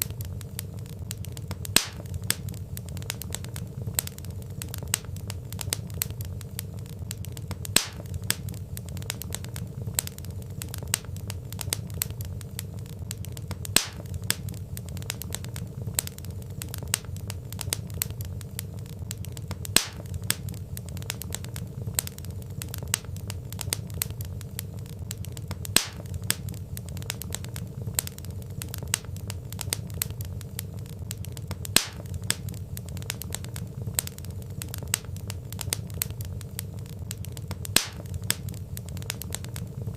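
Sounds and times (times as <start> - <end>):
fire popping: 0.0 - 39.9
wood fire crackling: 0.0 - 39.9.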